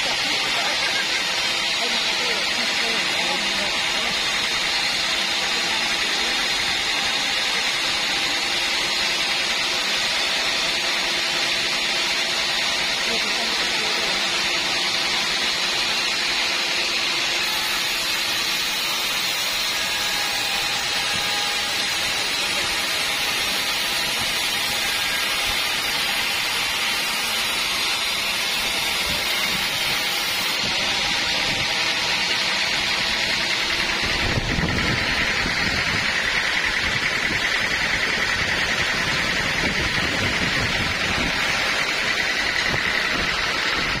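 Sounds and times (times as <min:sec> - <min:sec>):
band saw machinery running: 0:00.0 - 0:44.0
steady high whine: 0:00.0 - 0:44.0.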